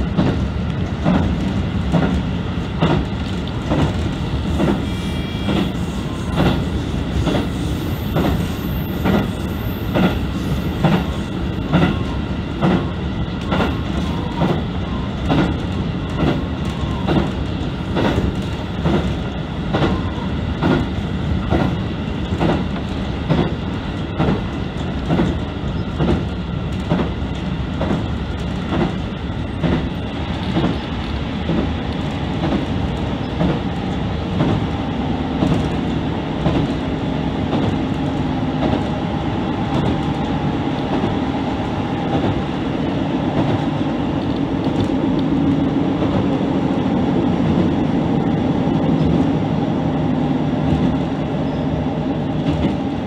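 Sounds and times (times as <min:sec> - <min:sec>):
train wheels clacking on rail joints: 0:00.0 - 0:14.6, 0:15.2 - 0:20.0, 0:20.6 - 0:31.7, 0:32.3 - 0:34.7, 0:35.4 - 0:36.8, 0:37.4 - 0:38.9
train running noise: 0:00.0 - 0:53.0.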